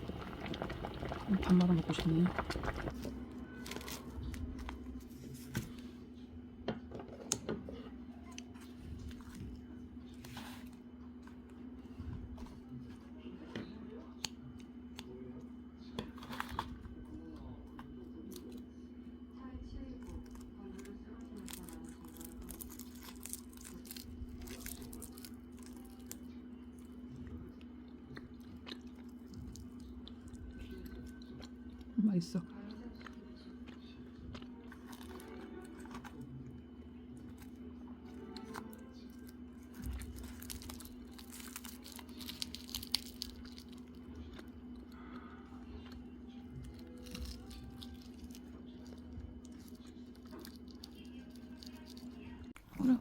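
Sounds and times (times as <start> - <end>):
low hum: 0.0 - 6.6
steady low hum: 0.0 - 53.0
person chewing crunchy food: 2.2 - 3.0, 21.3 - 52.8.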